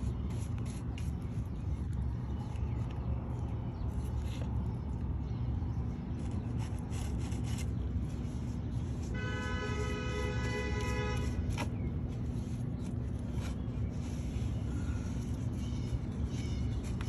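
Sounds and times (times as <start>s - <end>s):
brush rubbing strokes: 0.0s - 1.7s.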